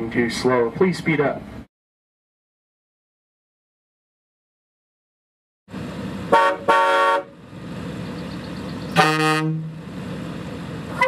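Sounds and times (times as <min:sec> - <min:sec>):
vehicle horn honking: 0:06.3 - 0:07.3, 0:09.0 - 0:09.7.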